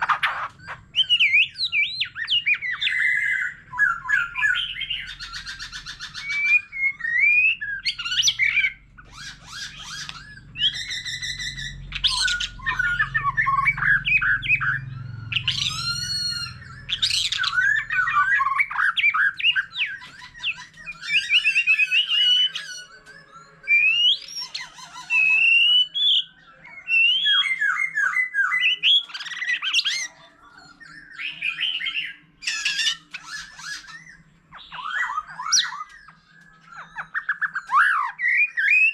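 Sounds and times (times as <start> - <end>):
songbird singing whistles and trills: 0.0 - 38.9.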